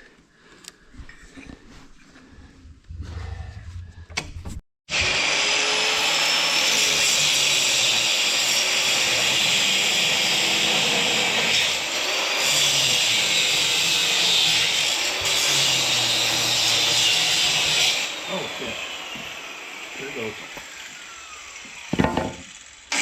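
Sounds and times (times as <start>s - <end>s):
power tool whirring: 4.9s - 23.0s.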